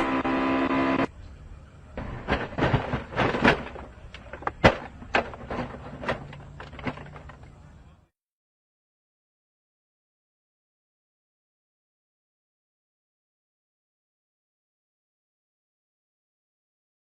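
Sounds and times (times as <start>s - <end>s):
racing car crashing bangs: 2.0s - 7.3s.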